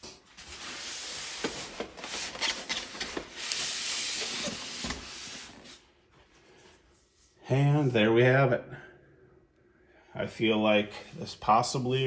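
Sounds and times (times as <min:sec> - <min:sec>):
plastic packaging rustling: 0:00.1 - 0:06.5.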